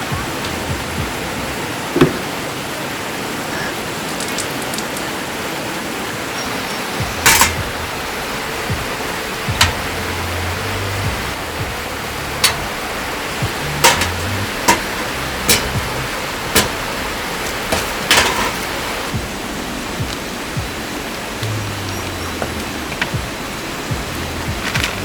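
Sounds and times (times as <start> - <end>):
stream running over rocks: 0.0 - 25.0
sharp knocks: 2.0 - 2.4, 9.5 - 10.0.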